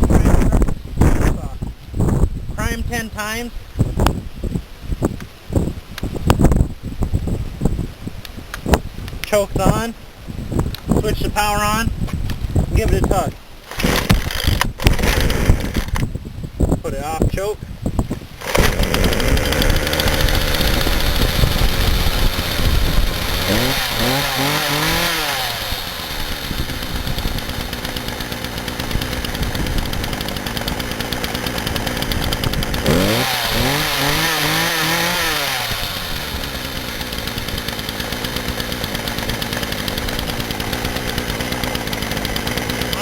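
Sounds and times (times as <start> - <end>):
chainsaw revving and idling: 12.8 - 16.0, 18.4 - 43.0.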